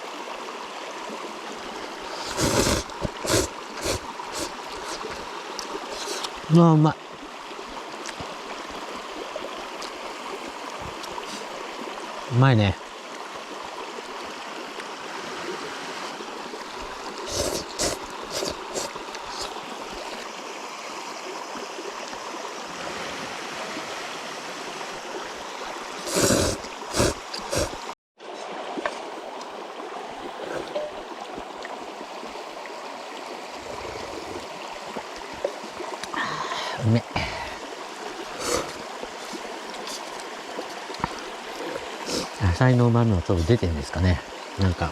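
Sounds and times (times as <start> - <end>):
river rushing: 13.0 - 42.6.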